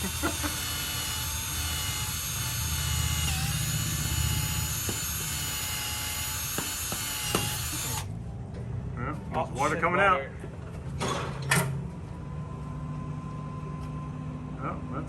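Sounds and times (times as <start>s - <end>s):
power drill boring into fiberglass: 0.0s - 8.1s.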